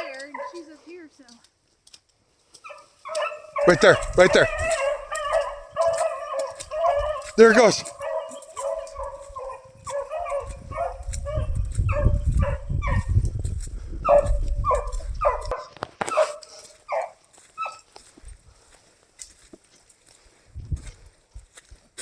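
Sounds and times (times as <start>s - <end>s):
dog barking short yips: 14.1s - 17.9s.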